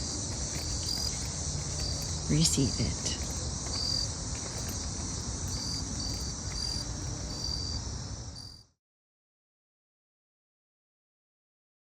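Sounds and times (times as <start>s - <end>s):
high-pitched insect chirps: 0.0s - 8.6s
crickets trilling: 0.0s - 8.7s.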